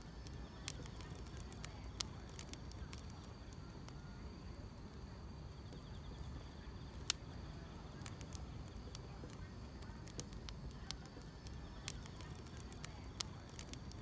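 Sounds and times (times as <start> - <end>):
firewood crackling and popping: 0.0 - 14.0
insects chirring: 0.0 - 14.0
low fire rumble: 0.0 - 14.0.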